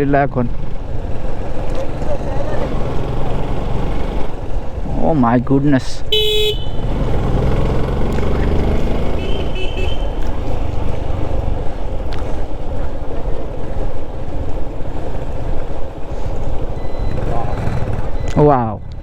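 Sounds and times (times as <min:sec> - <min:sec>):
motorcycle engine and road noise: 0:00.0 - 0:19.0
motorcycle horn toot: 0:06.1 - 0:07.6, 0:08.8 - 0:10.4.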